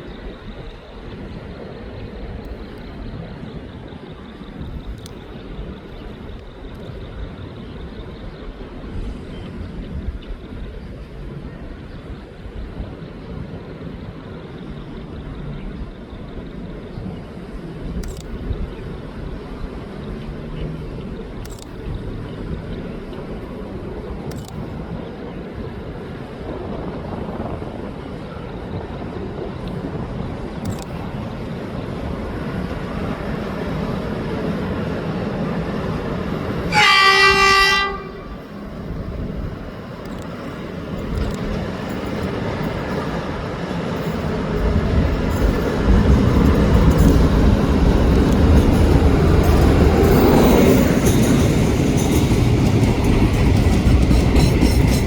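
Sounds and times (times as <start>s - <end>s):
diesel locomotive engine rumble: 0.0s - 55.0s
train wheel noise: 0.0s - 55.0s
train horn blast: 36.7s - 38.7s.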